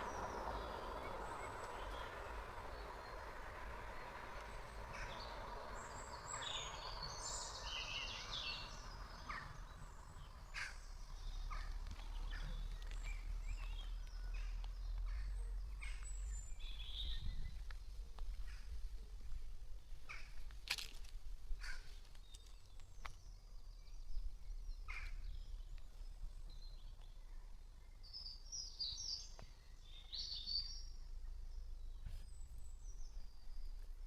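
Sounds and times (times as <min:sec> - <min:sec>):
vehicle passing: 0:00.0 - 0:19.0
low outdoor rumble: 0:00.0 - 0:34.0
small birds chirping: 0:00.0 - 0:34.0.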